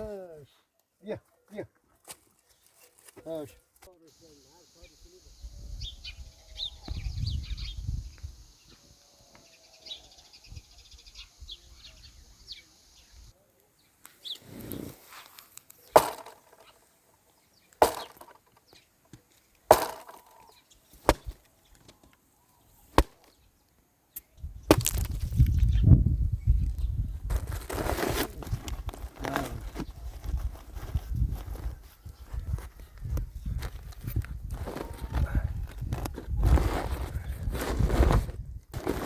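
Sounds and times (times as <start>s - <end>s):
birds chirping: 2.4s - 15.0s, 15.7s - 27.1s
sharp knocks: 16.0s - 16.7s, 17.8s - 18.4s, 19.7s - 20.5s.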